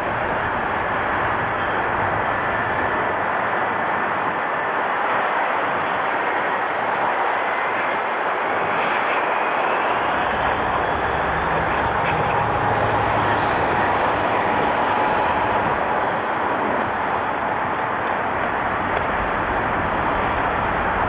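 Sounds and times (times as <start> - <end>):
jet engines roaring: 0.0 - 21.0
thin engine whine: 8.9 - 21.0.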